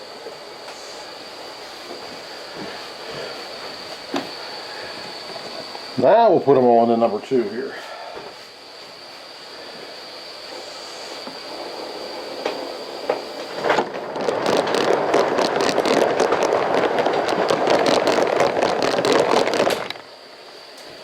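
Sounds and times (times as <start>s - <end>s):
steam locomotive running: 9.0s - 21.0s.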